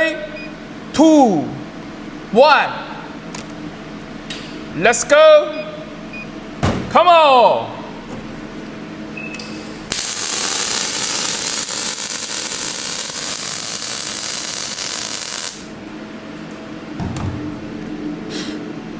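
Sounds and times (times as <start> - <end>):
welding arc hiss and crackle: 9.4 - 15.8.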